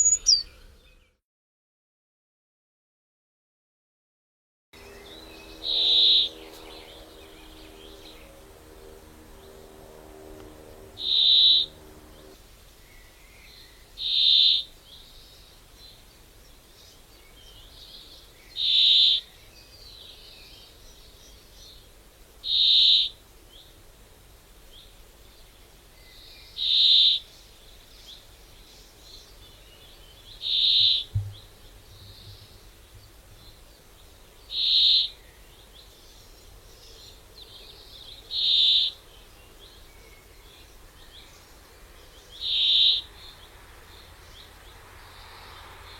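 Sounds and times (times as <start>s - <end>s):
bird whistling high note: 0.0s - 0.5s
low thump: 31.1s - 32.4s.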